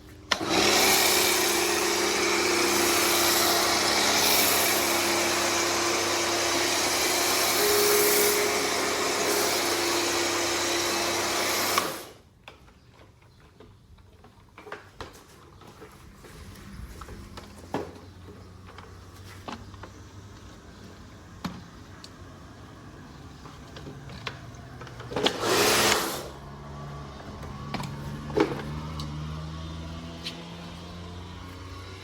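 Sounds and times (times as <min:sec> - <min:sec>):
motor running: 0:00.3 - 0:12.2.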